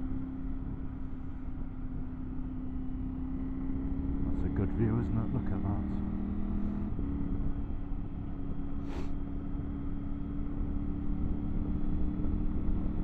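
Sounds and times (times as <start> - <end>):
motorcycle engine running: 0.0 - 13.0
short hiss: 8.8 - 9.1.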